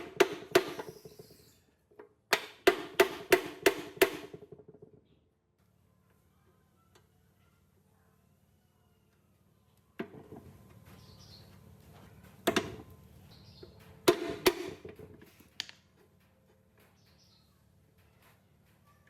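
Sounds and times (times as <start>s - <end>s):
sharp knocks and clatters: 0.0s - 5.2s, 10.0s - 13.0s, 13.6s - 18.9s.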